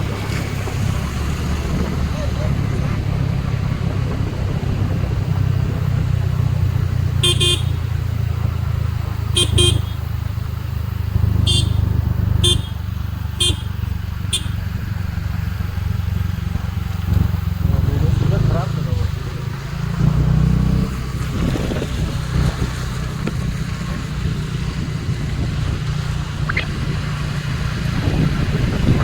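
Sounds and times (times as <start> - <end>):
engine running steadily: 0.0 - 29.0
vehicle horn short beeps: 7.2 - 8.0, 9.3 - 10.1, 11.4 - 14.7.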